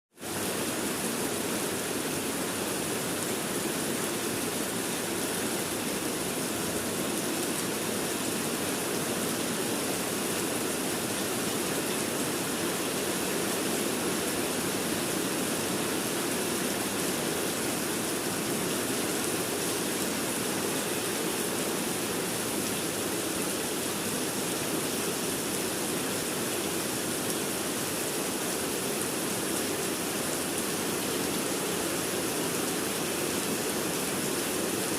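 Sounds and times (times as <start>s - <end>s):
rain falling: 0.2s - 34.9s.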